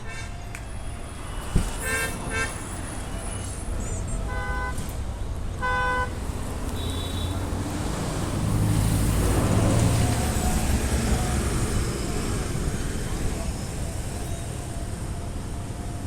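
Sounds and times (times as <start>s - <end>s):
road traffic rumble: 0.0s - 16.0s
vehicle horn toots: 1.8s - 2.7s, 5.6s - 7.4s
vehicle passing: 7.4s - 13.3s.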